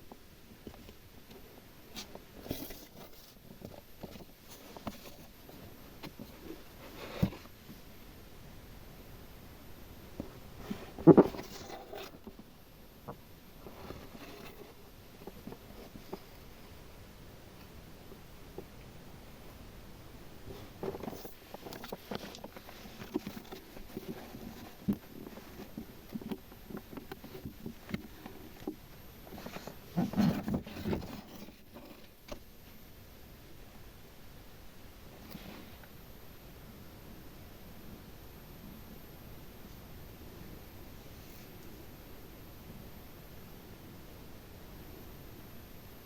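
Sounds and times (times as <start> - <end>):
soft rustling: 0.1 - 7.9, 20.3 - 32.4.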